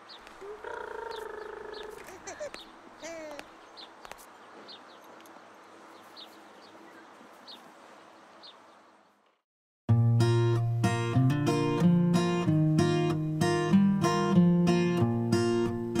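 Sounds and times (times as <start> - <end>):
birds chirping faintly: 0.0 - 9.4
low gliding bird call: 0.4 - 3.4.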